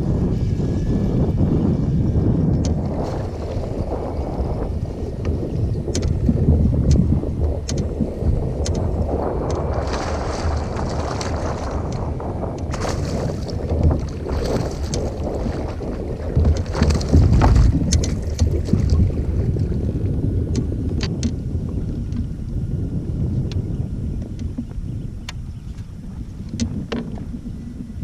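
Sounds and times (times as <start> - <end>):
wind buffeting microphone: 0.0 - 28.0
sharp clicks and knocks: 5.9 - 7.0, 7.6 - 7.9, 8.6 - 8.8, 16.4 - 19.0.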